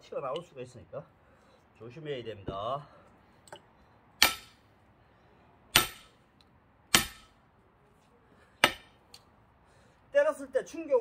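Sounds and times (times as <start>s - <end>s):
sledgehammer striking axe head: 4.2s - 4.6s, 5.7s - 6.2s, 6.9s - 7.4s, 8.6s - 8.9s.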